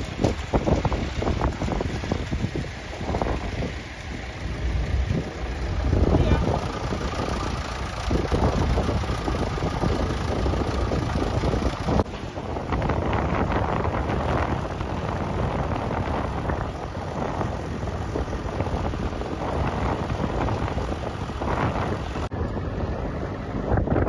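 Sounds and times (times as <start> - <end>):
tractor engines running: 0.0 - 24.0
wind buffeting microphone: 0.0 - 24.0.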